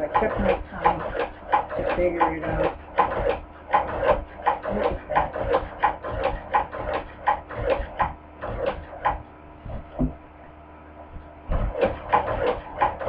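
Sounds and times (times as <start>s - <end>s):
hand-crank sewing machine clacking: 0.0s - 9.2s, 11.6s - 13.0s.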